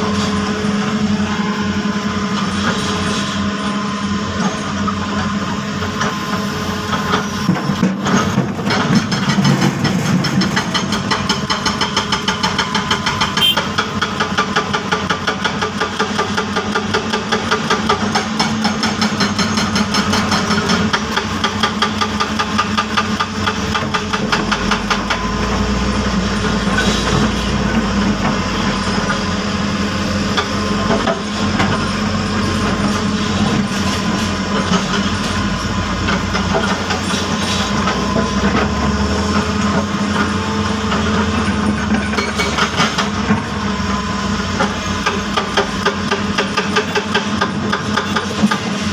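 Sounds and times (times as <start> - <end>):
heavy diesel engine running: 0.0 - 48.9.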